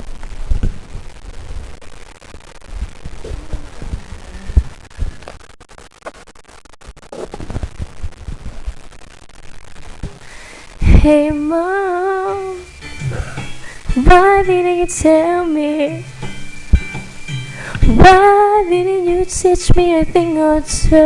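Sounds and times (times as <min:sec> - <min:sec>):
microphone handling thumps: 0:00.0 - 0:01.9, 0:02.6 - 0:05.5, 0:07.1 - 0:08.9, 0:09.9 - 0:11.5
faint murmurs: 0:03.1 - 0:05.3.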